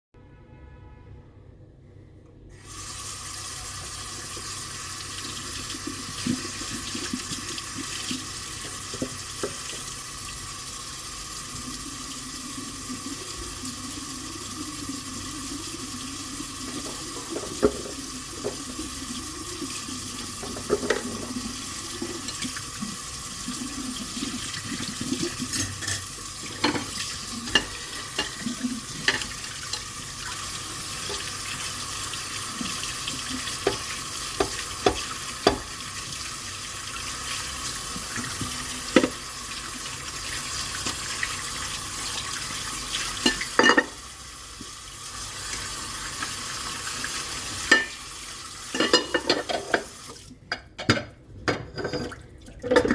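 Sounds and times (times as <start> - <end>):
tap water running into sink: 2.7 - 50.3
dishes clinking: 25.5 - 29.8, 43.2 - 44.0, 47.7 - 48.0, 48.7 - 49.9, 50.5 - 52.9.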